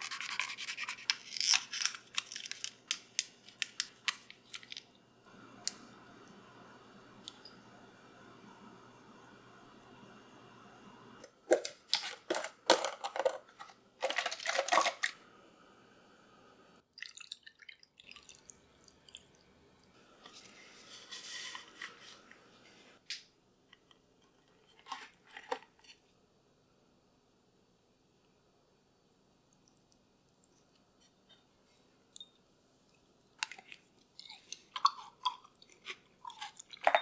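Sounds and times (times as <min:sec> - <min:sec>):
soft hiss: 0:02.7 - 0:11.9, 0:15.0 - 0:16.8, 0:18.4 - 0:24.9
kitchen items clicking and clattering: 0:11.2 - 0:15.2.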